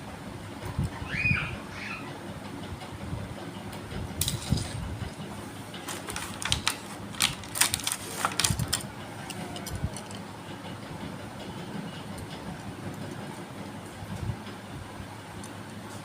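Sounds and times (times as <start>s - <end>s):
plastic clicks and crackles: 5.8s - 10.2s.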